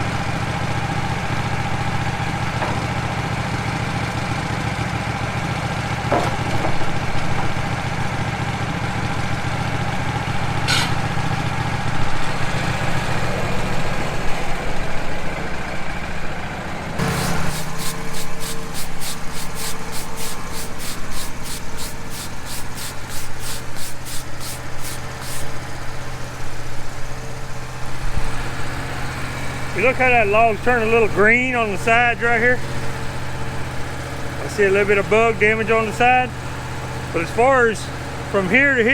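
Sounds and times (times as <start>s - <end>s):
sawmill engine idling: 17.0s - 38.9s.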